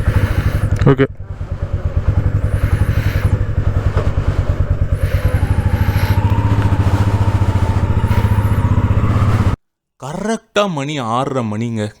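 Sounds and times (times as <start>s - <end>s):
motorcycle engine thumping: 0.0s - 9.6s.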